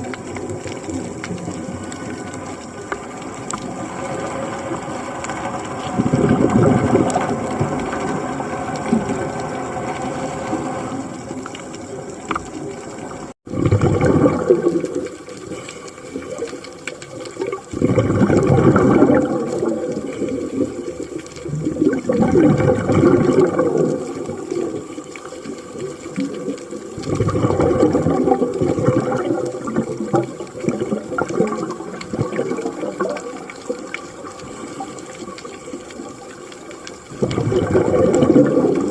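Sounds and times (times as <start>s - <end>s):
bubbles gurgling: 0.0s - 38.9s.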